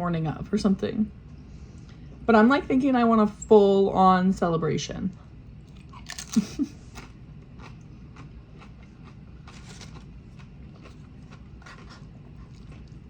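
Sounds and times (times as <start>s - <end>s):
chewing: 5.7s - 13.0s.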